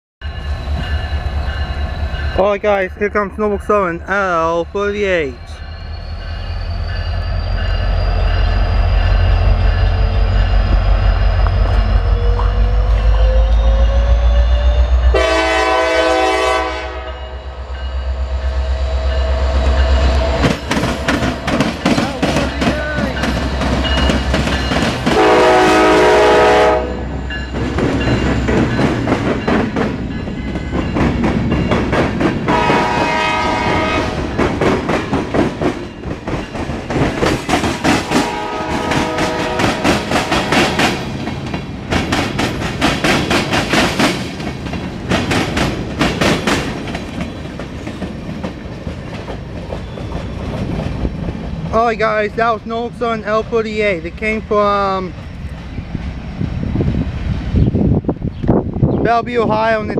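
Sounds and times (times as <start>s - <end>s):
locomotive engine rumble: 0.2s - 58.9s
diesel locomotive horn: 11.9s - 17.7s, 25.1s - 27.2s, 32.5s - 34.3s, 38.0s - 41.0s
train wheels clacking over rail joints: 20.4s - 25.9s, 27.4s - 51.7s.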